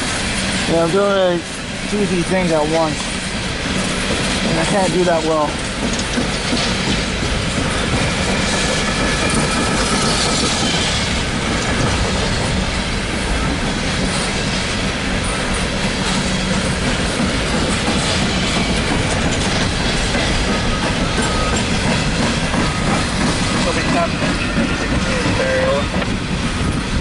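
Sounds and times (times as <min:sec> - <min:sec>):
freight train rumbling past: 0:00.0 - 0:27.0
high wheel squeal: 0:19.8 - 0:25.9.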